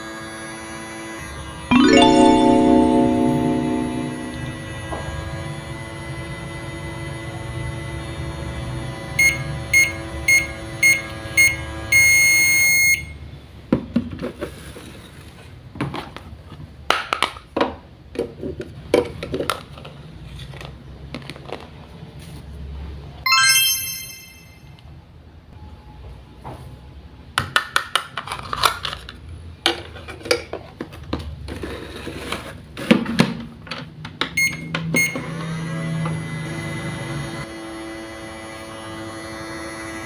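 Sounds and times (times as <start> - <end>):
background music: 1.7 - 5.0, 23.3 - 24.6
electronic ding: 1.7 - 5.0, 23.3 - 24.7
toy appliance electronic beeps: 34.4 - 35.2.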